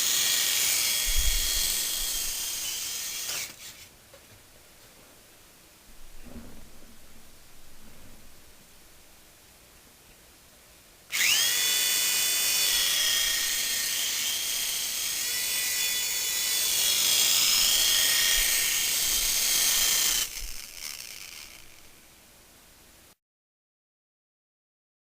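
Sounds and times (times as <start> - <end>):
toy helicopter motor whine: 0.0 - 3.9, 11.1 - 21.9.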